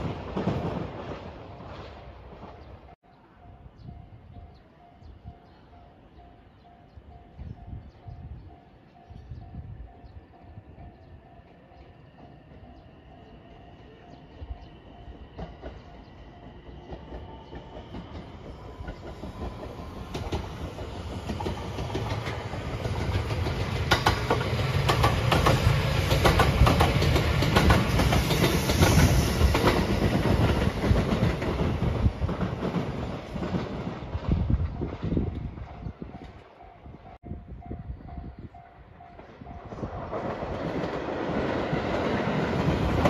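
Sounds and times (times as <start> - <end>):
electric train passing: 0.0 - 43.0
wheels clacking over rail joints: 15.3 - 35.1.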